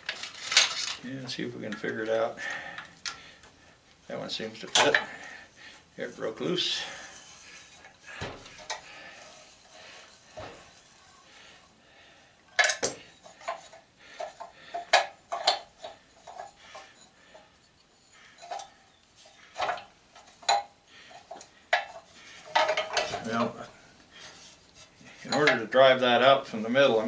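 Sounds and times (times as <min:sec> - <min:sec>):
metal tools clinking on workbench: 0:04.7 - 0:05.2, 0:25.2 - 0:25.7.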